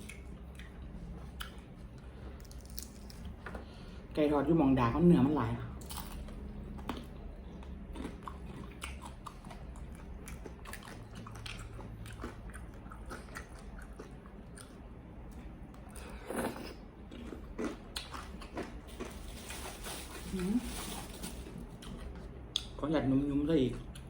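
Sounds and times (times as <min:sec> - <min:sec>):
crunchy biting and chewing: 0:02.4 - 0:03.3, 0:05.8 - 0:14.9, 0:15.8 - 0:19.7.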